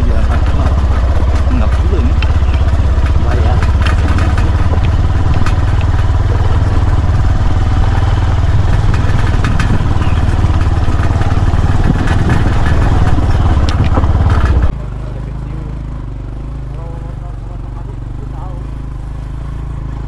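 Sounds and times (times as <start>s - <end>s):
rattles and clicks: 0.0s - 14.8s
vehicle rumbling: 0.0s - 20.0s.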